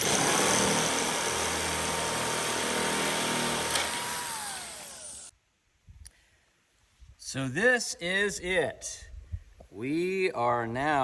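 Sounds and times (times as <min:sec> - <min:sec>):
electric metal shear cutting metal: 0:00.0 - 0:05.3.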